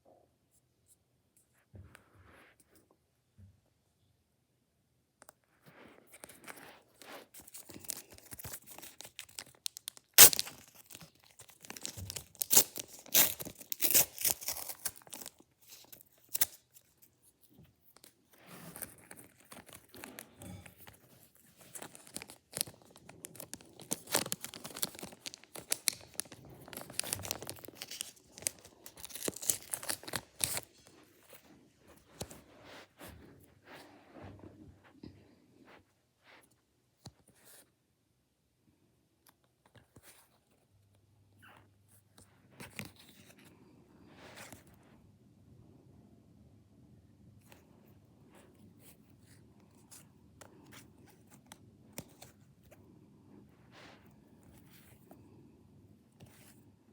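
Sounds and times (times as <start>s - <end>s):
wrappers crinkling: 7.4s - 17.0s, 21.5s - 32.8s
foil packs being torn open: 7.5s - 16.8s, 21.7s - 30.8s.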